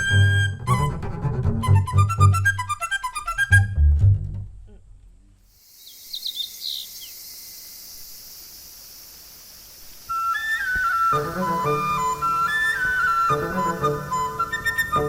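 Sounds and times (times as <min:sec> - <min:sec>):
outdoor ambience hiss: 0:04.2 - 0:15.0
bird chirping: 0:05.5 - 0:08.8.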